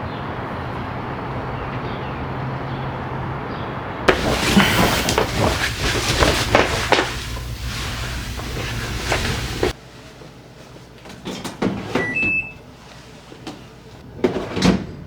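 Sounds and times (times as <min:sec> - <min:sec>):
handling knocks: 0:04.1 - 0:09.7
rushing noise with low hum: 0:04.1 - 0:09.8
appliance button beeps: 0:12.0 - 0:12.6.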